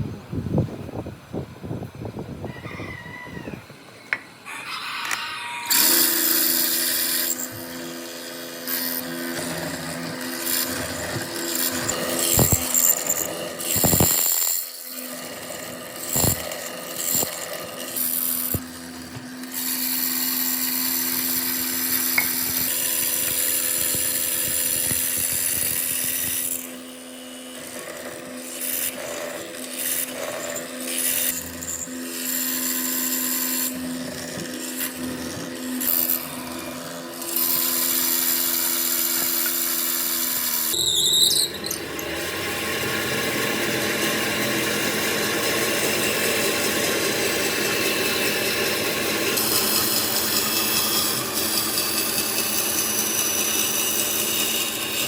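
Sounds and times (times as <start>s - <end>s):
power tool cutting wood: 4.1s - 55.0s
sharp knocks: 22.2s - 26.5s.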